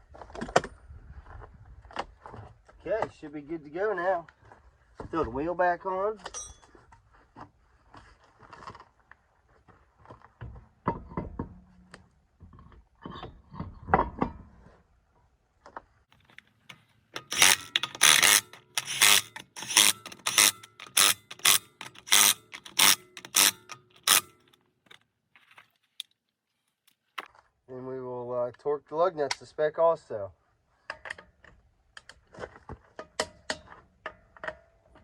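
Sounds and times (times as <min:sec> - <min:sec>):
wrench rattling lug nuts: 0:16.4 - 0:24.5.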